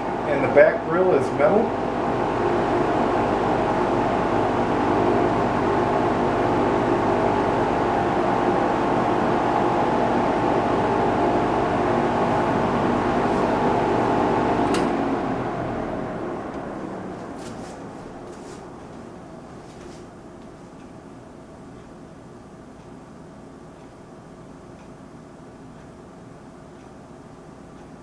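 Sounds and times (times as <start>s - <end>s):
box fan running: 0.0s - 28.0s.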